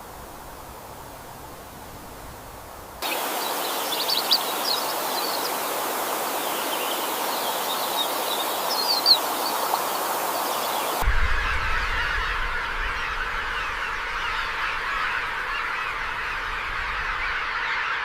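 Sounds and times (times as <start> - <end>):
running water rushing: 0.0 - 17.8
small birds chirping: 3.0 - 11.0.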